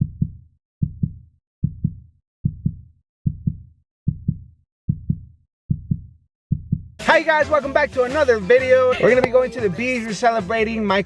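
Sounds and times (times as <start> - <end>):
heartbeat double thump: 0.0 - 7.0.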